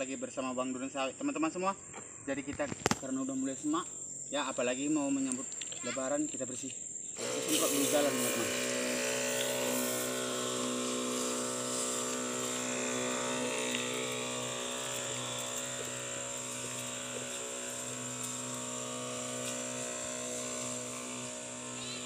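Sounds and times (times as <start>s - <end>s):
small engine running: 7.2s - 22.0s.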